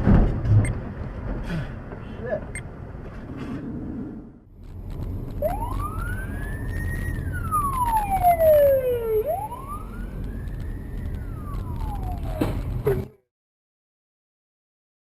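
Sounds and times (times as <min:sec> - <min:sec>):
low road rumble: 0:00.0 - 0:13.2
emergency siren wailing: 0:04.7 - 0:13.1.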